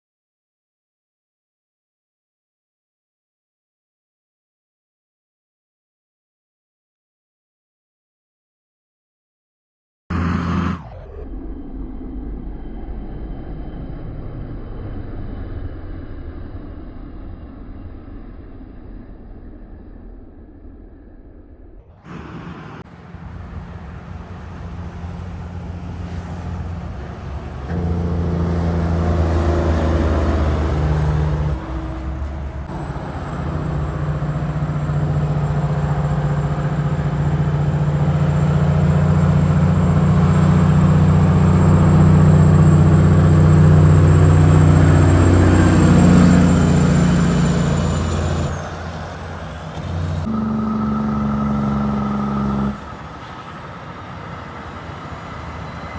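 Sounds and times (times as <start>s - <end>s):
truck diesel engine passing: 10.1s - 11.1s, 22.0s - 55.9s.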